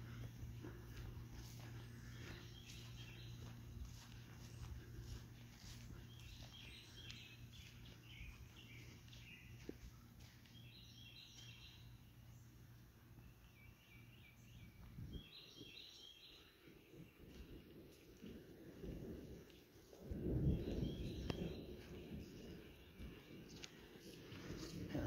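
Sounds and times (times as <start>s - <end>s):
low steady hum: 0.0s - 25.0s
high bird chirping: 1.6s - 9.6s.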